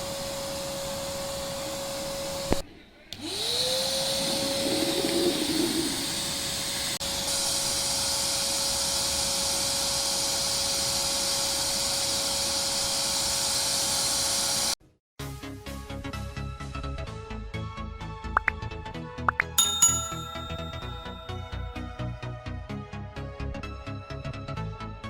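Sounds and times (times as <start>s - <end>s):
vacuum cleaner motor whine: 3.1s - 4.9s.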